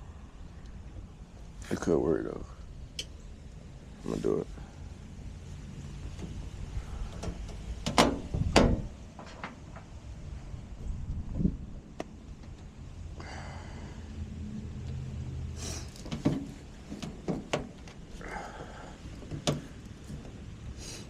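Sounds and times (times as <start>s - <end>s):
low steady hum: 0.0s - 21.0s
scraping rustles: 15.6s - 21.0s.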